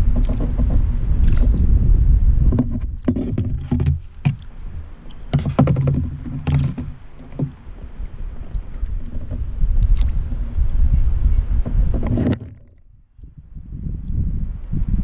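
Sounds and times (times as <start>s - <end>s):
knocks against kayak: 2.5s - 4.5s, 5.3s - 7.6s.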